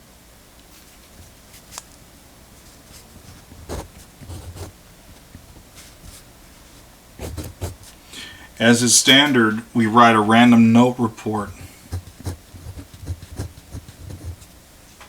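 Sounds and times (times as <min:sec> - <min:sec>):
pencil scratching on paper: 0:02.8 - 0:08.0, 0:11.2 - 0:14.5.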